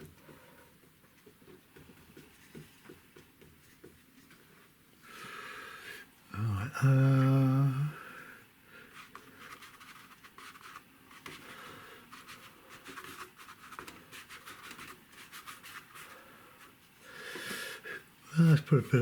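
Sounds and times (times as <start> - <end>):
man humming: 6.3 - 8.0
paintbrush scratching on paper: 9.0 - 11.5, 12.1 - 16.8.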